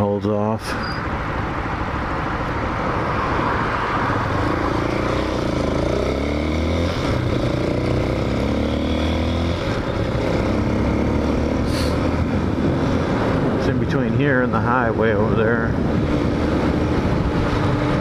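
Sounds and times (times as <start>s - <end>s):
wind rushing: 9.2s - 18.0s.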